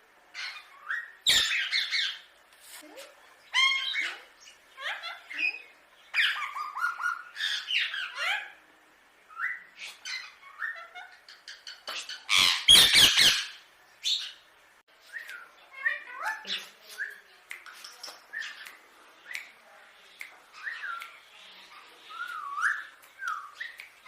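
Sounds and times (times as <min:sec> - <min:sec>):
parakeet squawking: 0:00.4 - 0:02.3, 0:03.5 - 0:08.6, 0:09.5 - 0:14.4.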